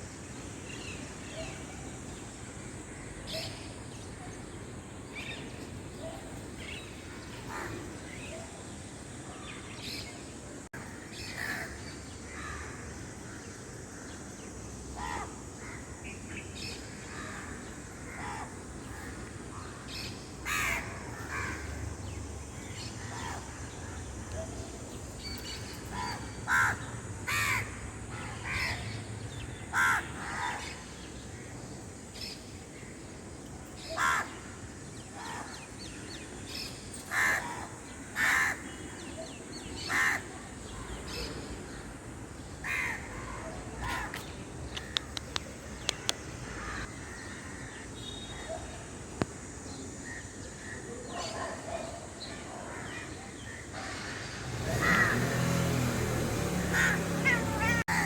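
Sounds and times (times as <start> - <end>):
birds calling: 15.0 - 58.0.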